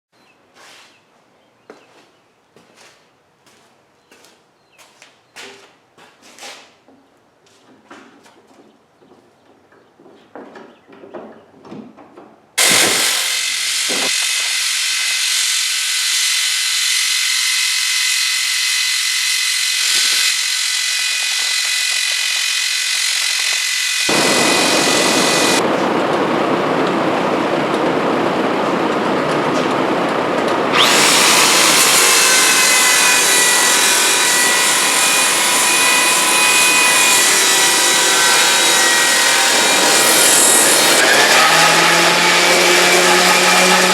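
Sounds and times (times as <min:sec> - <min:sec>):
power tool whining on wood: 0:12.6 - 0:25.6, 0:30.7 - 0:43.9.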